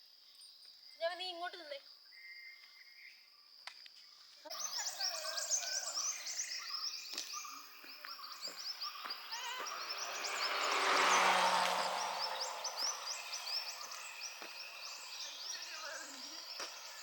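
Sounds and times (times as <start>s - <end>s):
birds chirping: 4.5s - 17.0s.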